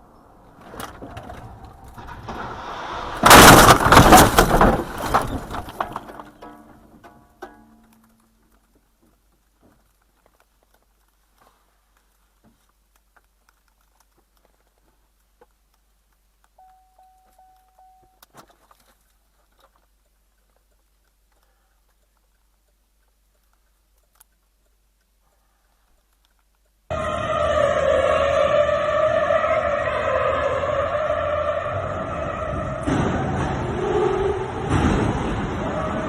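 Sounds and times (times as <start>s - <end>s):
faint clicks: 7.8s - 26.9s
faint beeping tone: 16.6s - 18.3s.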